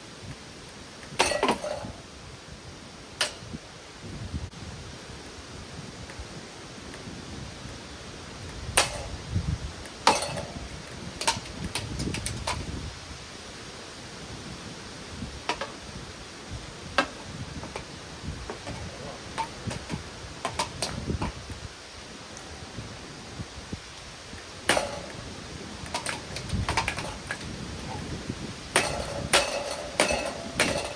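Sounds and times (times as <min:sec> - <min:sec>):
steady hiss: 0:00.0 - 0:30.9
metal knocks and clicks: 0:01.2 - 0:02.0, 0:10.0 - 0:12.6, 0:17.0 - 0:17.9, 0:18.5 - 0:21.4, 0:24.7 - 0:25.2, 0:25.8 - 0:28.1, 0:28.8 - 0:30.9.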